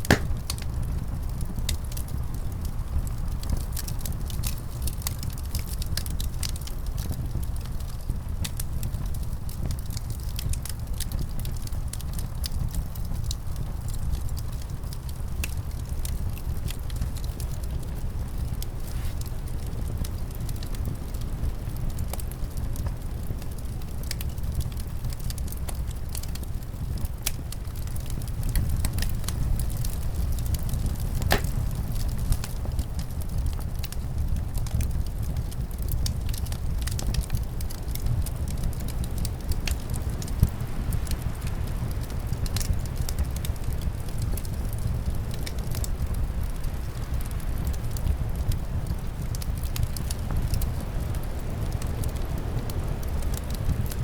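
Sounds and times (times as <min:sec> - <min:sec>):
low rumble of wind: 0:00.0 - 0:54.0
wood fire crackling and popping: 0:00.0 - 0:54.0.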